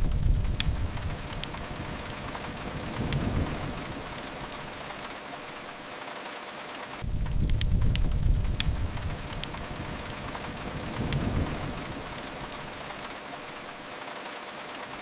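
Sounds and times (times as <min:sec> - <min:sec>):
low rumble: 0:00.0 - 0:05.0, 0:07.0 - 0:13.1
rain hiss: 0:00.0 - 0:15.0
wood fire crackling: 0:00.0 - 0:15.0.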